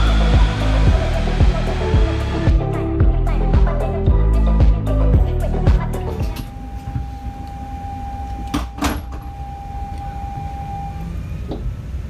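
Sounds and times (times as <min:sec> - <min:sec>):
steady high tone: 0:00.0 - 0:11.4
train interior rumble: 0:05.8 - 0:12.0.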